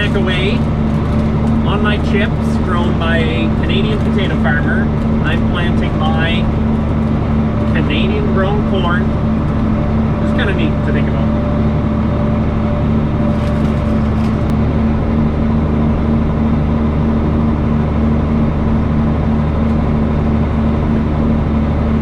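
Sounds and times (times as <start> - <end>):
faint crackles: 0.0 - 7.9
tractor engine droning: 0.0 - 22.0.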